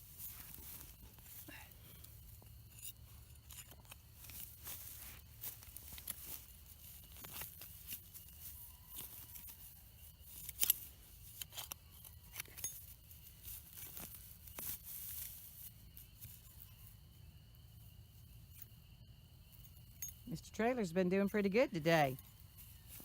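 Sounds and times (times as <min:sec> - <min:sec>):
scraping and crunching dirt digging: 0:00.0 - 0:20.9, 0:21.7 - 0:23.0.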